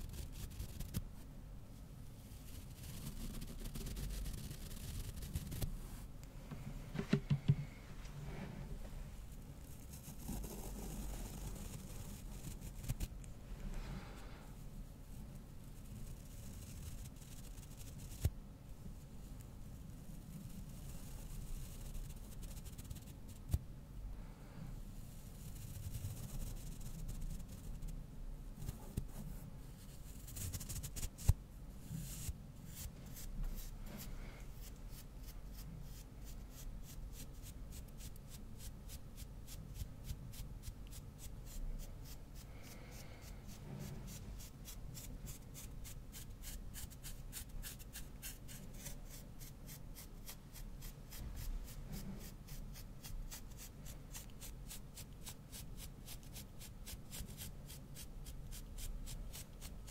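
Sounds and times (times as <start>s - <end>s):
brush scratching a microphone: 0.0s - 1.1s, 2.2s - 5.9s, 9.2s - 13.2s, 15.6s - 18.3s, 20.0s - 23.5s, 25.1s - 28.0s, 28.6s - 59.9s
knock against microphone: 7.0s - 7.6s.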